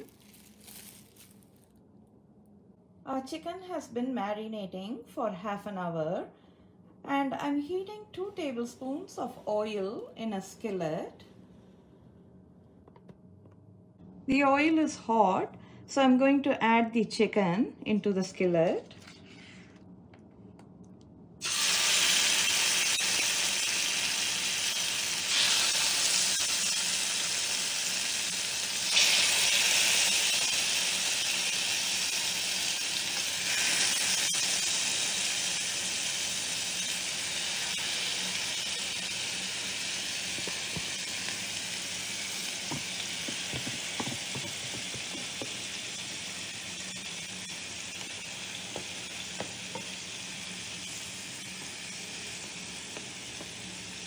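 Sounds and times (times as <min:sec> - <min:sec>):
chicken sizzling in hot oil: 0:21.4 - 0:54.0.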